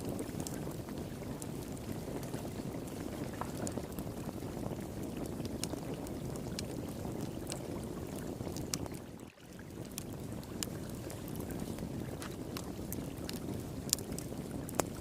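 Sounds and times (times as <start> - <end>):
wood fire crackling and popping: 0.0 - 15.0
flowing water rushing: 8.8 - 15.0.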